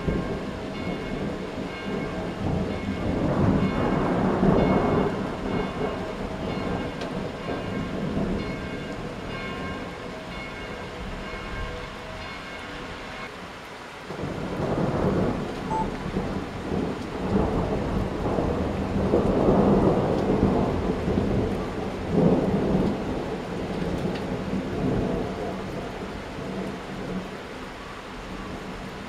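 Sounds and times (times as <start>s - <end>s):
thunder rolling: 0.0s - 9.9s, 14.1s - 27.2s
steady rain: 0.0s - 29.0s.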